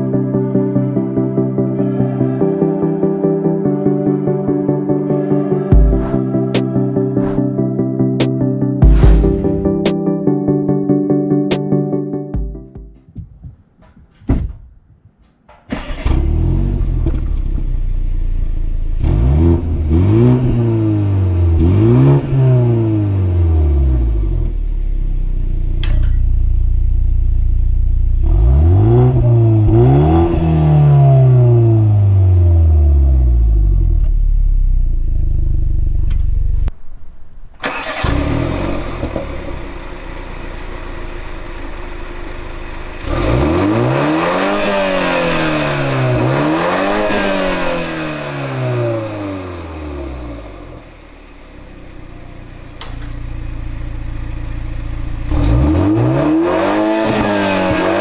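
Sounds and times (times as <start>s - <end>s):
car engine idling and revving: 5.7s - 6.2s, 15.8s - 58.0s.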